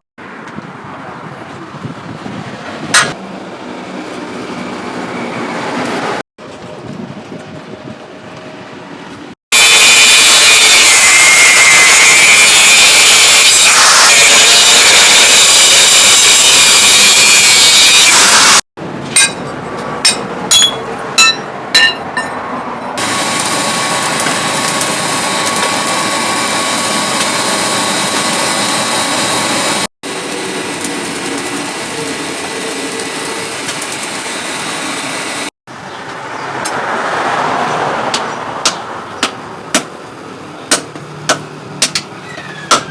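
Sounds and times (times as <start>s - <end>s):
angle grinder cutting metal: 9.5s - 18.6s, 23.0s - 35.5s
ringing strikes on metal: 20.0s - 22.4s.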